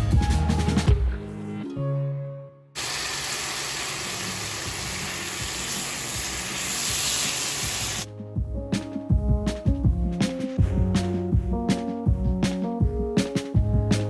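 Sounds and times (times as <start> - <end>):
background music with a beat: 0.0 - 1.8, 8.0 - 14.0
beans sizzling in a pan: 2.8 - 8.1.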